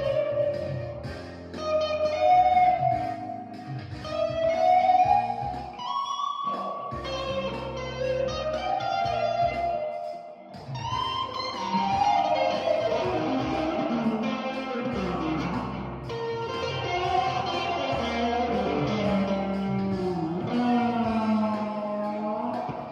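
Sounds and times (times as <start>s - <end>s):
low bass line: 0.0s - 5.8s, 10.6s - 22.9s
sliding bending guitar notes: 0.0s - 22.9s.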